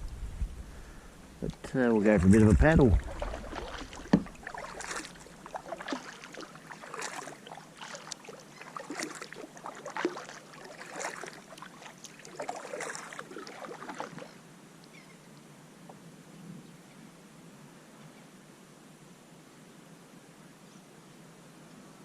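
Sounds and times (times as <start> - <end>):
kayak paddle splashing in water: 2.0 - 14.4.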